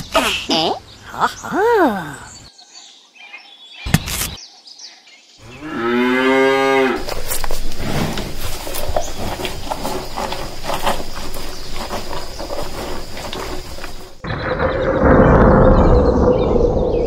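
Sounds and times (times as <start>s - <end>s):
cow mooing: 5.5s - 7.1s
crackling rustling noise: 7.0s - 14.7s.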